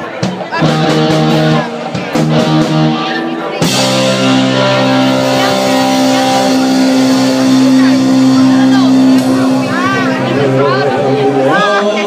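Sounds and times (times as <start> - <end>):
drums: 0.0 - 12.0
electric guitar chords: 0.1 - 12.0.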